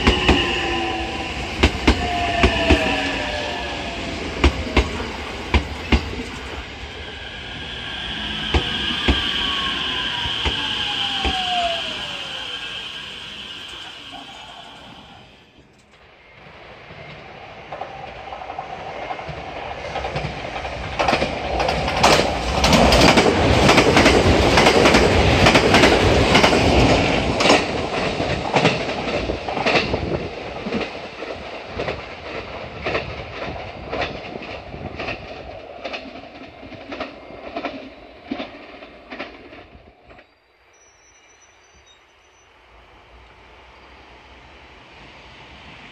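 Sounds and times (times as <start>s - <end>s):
train passing on rails: 0.0s - 45.9s
wheels clicking over rail joints: 17.7s - 40.3s.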